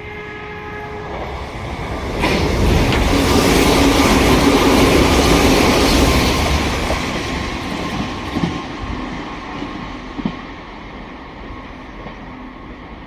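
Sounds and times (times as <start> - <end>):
electric train passing: 0.0 - 13.0
wheel clacks over rail joints: 2.2 - 8.6.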